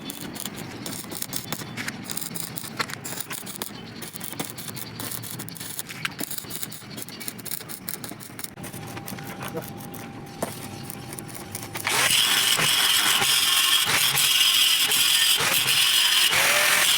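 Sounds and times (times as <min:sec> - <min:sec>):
sharp clicks and rattles: 0:00.0 - 0:08.6.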